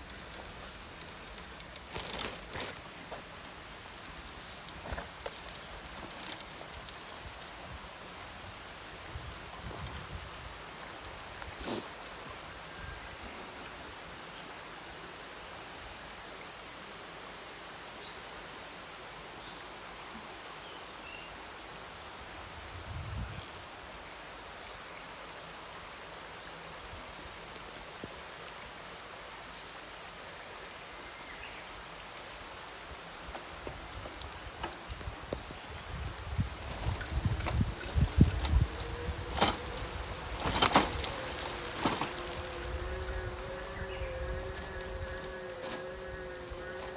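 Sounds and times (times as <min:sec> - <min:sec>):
outdoor background hiss: 0:00.0 - 0:46.9.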